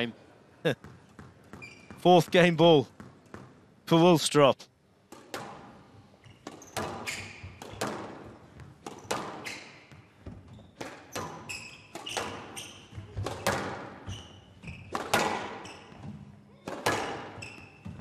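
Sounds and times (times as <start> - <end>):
shoe squeaks on court floor: 0.8 - 2.1, 6.2 - 8.0, 8.9 - 16.2, 16.8 - 18.0
squash ball hits echoing: 5.1 - 10.0, 10.8 - 18.0.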